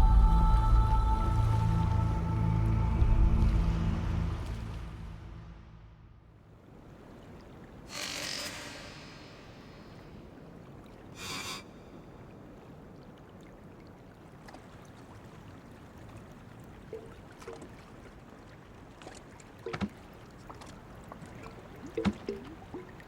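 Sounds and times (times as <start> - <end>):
rush of water: 0.0 - 5.8, 6.5 - 23.0
water lapping against raft: 6.6 - 23.0.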